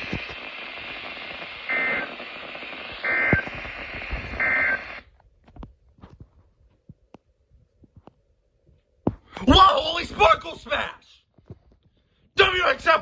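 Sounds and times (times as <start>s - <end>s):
digital data bursts: 0.0s - 5.0s
radio static hiss: 0.0s - 5.2s.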